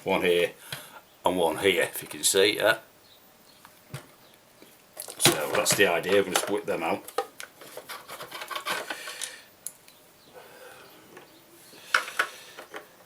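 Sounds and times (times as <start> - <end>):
plastic rubbing and scraping: 5.2 - 9.1.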